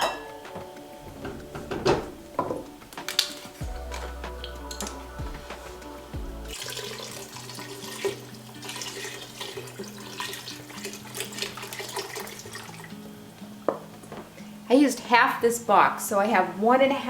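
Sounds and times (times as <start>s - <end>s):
background music: 0.0s - 15.3s
liquid pouring into a pot: 6.5s - 13.0s.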